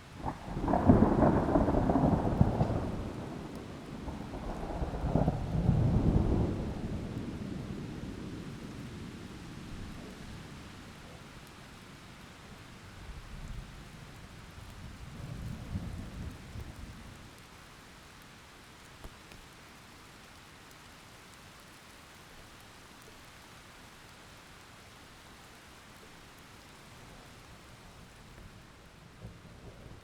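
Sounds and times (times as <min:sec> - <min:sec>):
heavy rain: 0:00.0 - 0:30.0
thunder rumble: 0:00.2 - 0:09.2.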